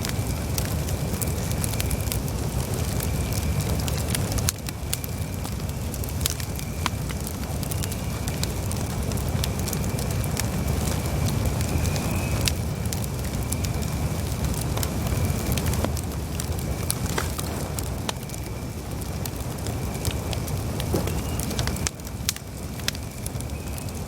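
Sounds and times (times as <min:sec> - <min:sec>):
campfire crackling and popping: 0:00.0 - 0:24.0
thin high whistle: 0:20.9 - 0:21.8.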